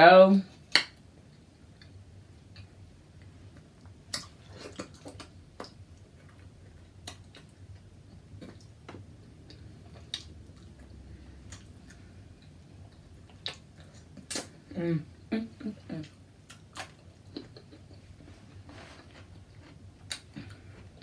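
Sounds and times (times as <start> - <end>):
faint low room hum: 0.0 - 21.0
soft chewing: 1.2 - 14.7, 15.6 - 21.0
mouth clicks and smacks: 13.3 - 14.6.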